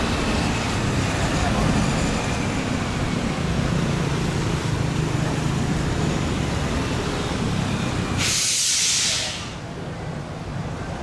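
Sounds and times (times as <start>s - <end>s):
loud hiss: 8.2s - 9.6s.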